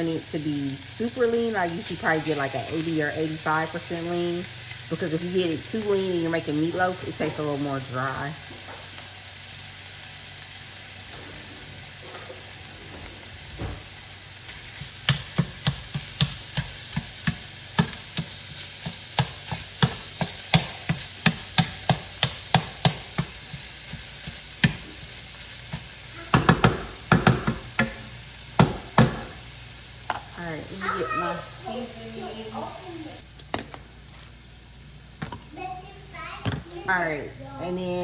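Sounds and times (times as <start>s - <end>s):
meat sizzling in a frying pan: 0.0s - 38.0s
utensil knocking against pan: 14.8s - 24.8s, 25.7s - 29.4s.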